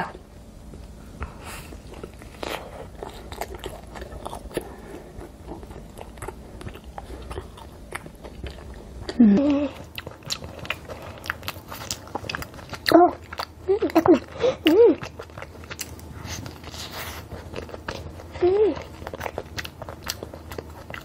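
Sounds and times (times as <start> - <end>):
chewing with wet clicks and crunches: 0.7 - 21.0
person humming: 9.1 - 9.9, 18.4 - 18.8.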